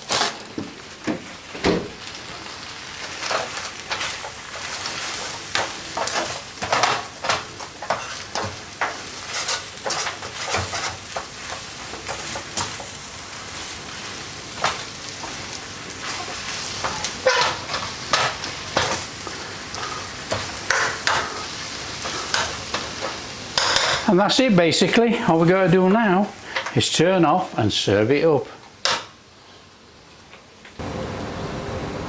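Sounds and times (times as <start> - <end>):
noodles sizzling in pan: 0.0 - 32.0
utensil scraping and clattering pan: 3.0 - 24.1.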